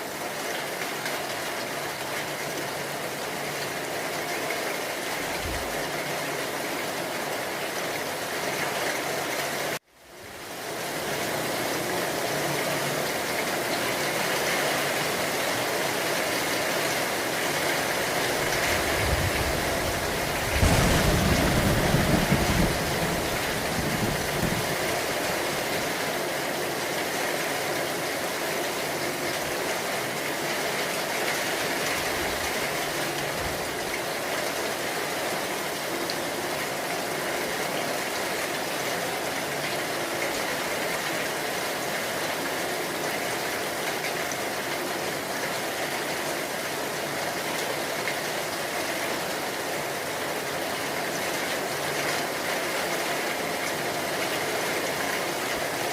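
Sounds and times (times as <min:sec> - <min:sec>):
heavy rain: 0:00.0 - 0:55.9
low rumble: 0:18.9 - 0:24.8.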